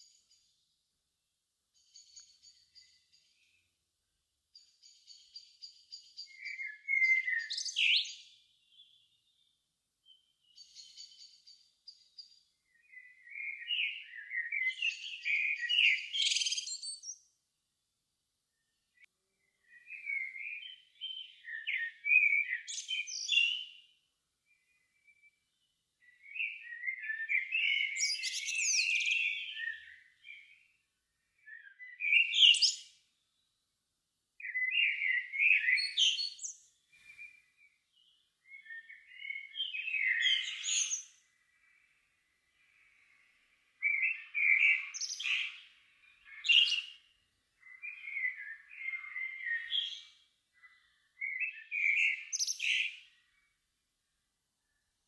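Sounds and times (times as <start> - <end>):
songbird warbling: 38.5 - 41.8.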